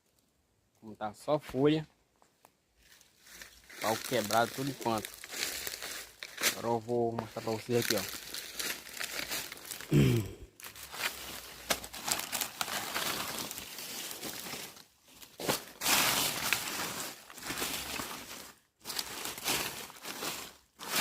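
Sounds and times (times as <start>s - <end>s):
dry leaves and sticks crackling: 2.4s - 10.0s, 10.6s - 21.0s.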